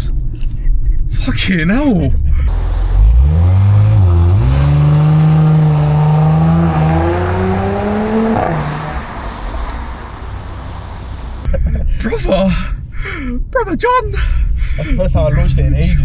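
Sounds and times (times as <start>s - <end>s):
car engine accelerating hard: 2.5s - 11.5s.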